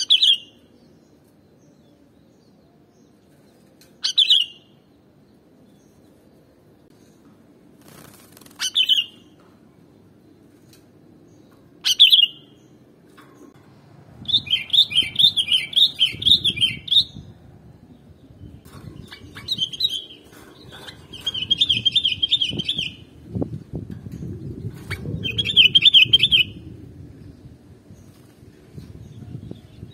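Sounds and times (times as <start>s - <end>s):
low background noise: 0.0s - 29.9s.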